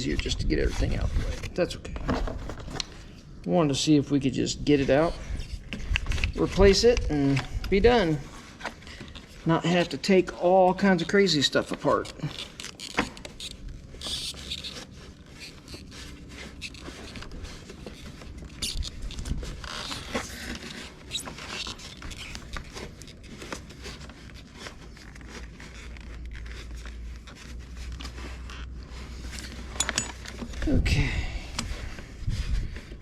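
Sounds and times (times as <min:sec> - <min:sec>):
parts clicking and scraping: 0:01.4 - 0:03.2, 0:10.9 - 0:30.7.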